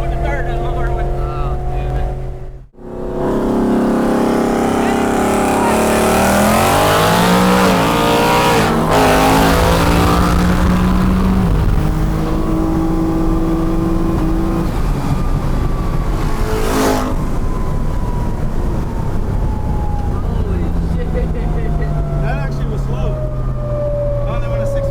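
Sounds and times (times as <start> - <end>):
car engine accelerating: 0.0 - 24.9.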